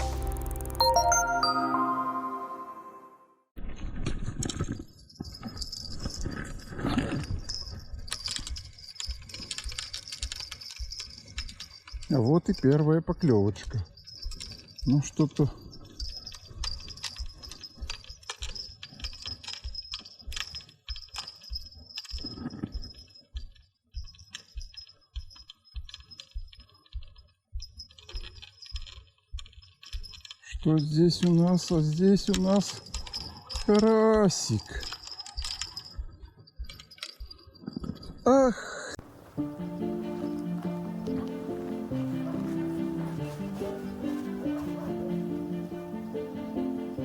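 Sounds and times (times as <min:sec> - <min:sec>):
small bells jingling: 0:07.2 - 0:12.7, 0:39.4 - 0:47.0.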